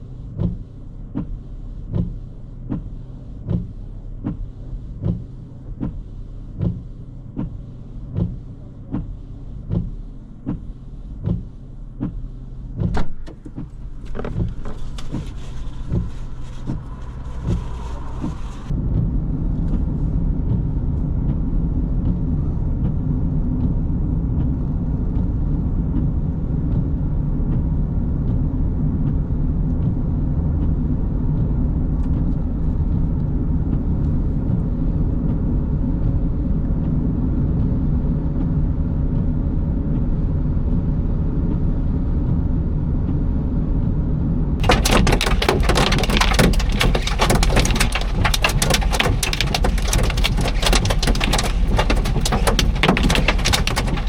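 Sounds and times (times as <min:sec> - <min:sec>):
engine and road rumble: 0:00.0 - 0:54.0.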